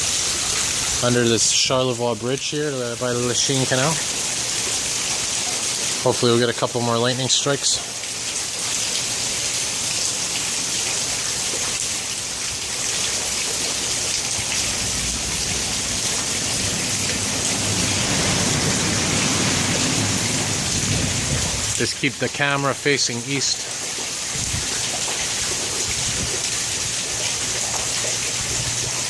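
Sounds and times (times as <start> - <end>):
heavy rain pouring: 0.0 - 29.0
low rumble: 14.6 - 21.7.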